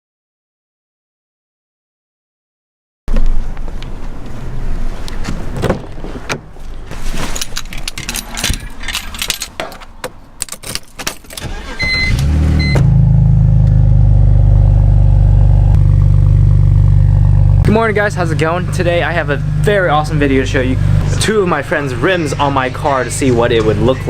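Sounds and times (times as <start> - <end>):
keys jangling: 7.2 - 9.8, 10.4 - 11.5
car engine starting and idling: 10.6 - 24.0.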